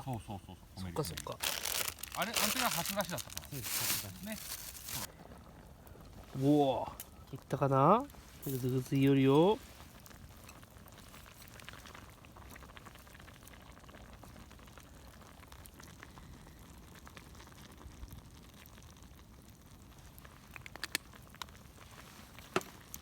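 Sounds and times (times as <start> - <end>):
broth bubbling in a pot: 0.1 - 23.0.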